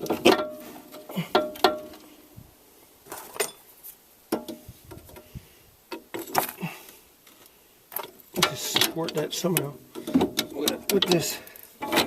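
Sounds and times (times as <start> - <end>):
metallic clunks and knocks: 4.3 - 5.3.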